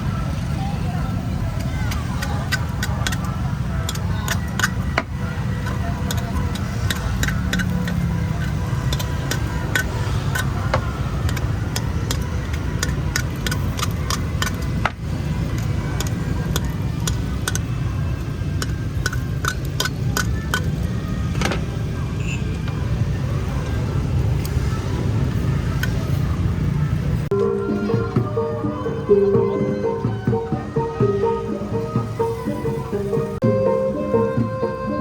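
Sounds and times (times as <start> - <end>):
sharp clicks and taps: 1.6 - 17.7.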